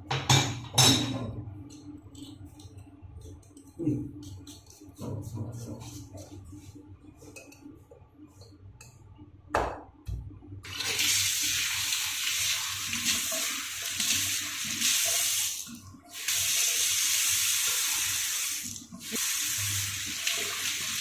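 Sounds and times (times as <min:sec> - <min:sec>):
water rushing from tap: 0:10.6 - 0:21.0.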